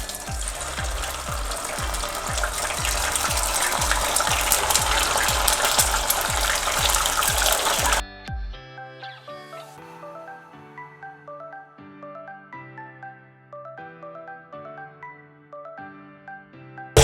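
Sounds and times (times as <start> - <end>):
chicken sizzling in hot oil: 0.0 - 8.0
background music with low beat: 0.0 - 8.7.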